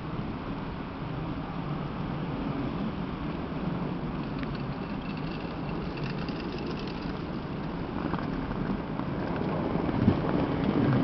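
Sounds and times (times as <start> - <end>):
electric train running on rails: 0.0 - 11.0.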